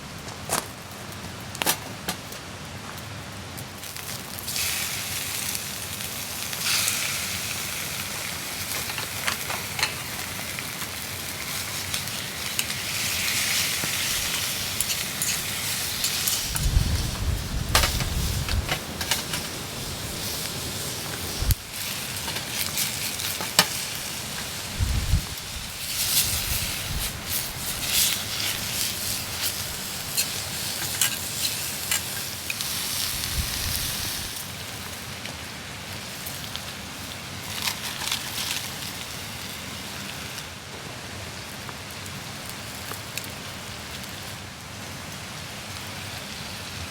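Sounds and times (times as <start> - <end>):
campfire crackles: 0.0 - 46.9
food sizzling in a pan: 3.8 - 40.4.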